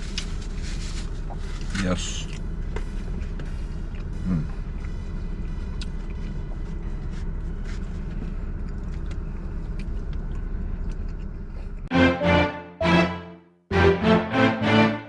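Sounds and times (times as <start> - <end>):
steady low rumble: 0.0 - 11.9.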